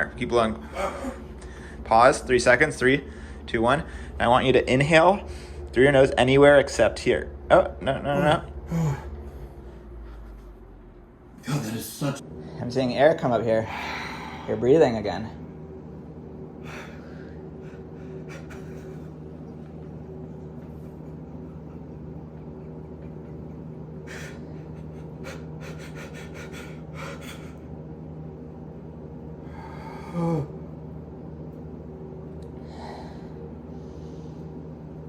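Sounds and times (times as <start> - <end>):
steady low hum: 0.0 - 35.0
person breathing deeply: 13.6 - 14.6.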